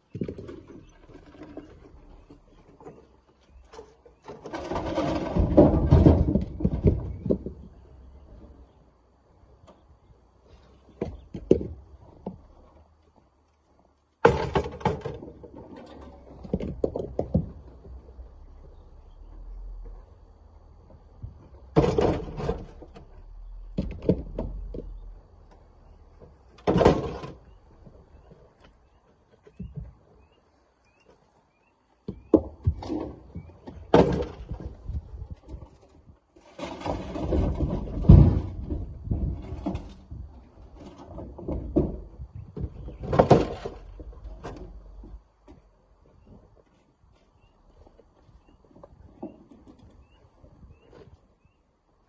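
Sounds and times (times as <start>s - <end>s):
rocks clattering into steel truck bed: 3.5s - 8.6s, 14.2s - 18.9s, 21.2s - 25.1s, 25.8s - 28.3s, 32.1s - 45.6s.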